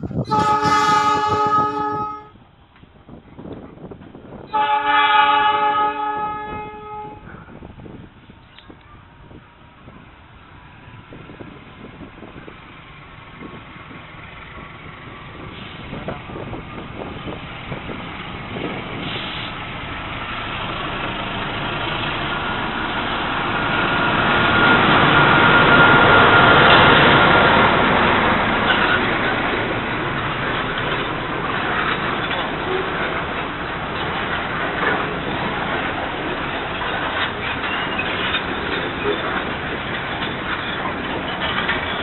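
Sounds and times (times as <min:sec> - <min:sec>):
diesel locomotive engine: 0:00.0 - 0:42.0
wagons rolling on rails: 0:20.1 - 0:42.0.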